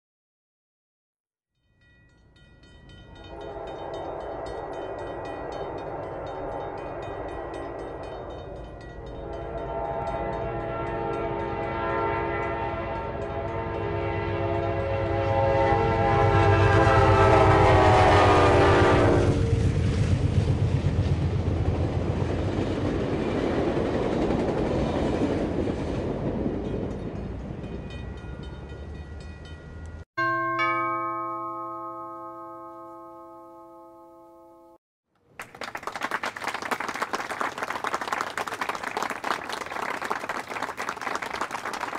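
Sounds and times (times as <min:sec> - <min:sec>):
train rumbling and clattering past: 0:02.3 - 0:30.0
train horn blasts: 0:03.1 - 0:19.9.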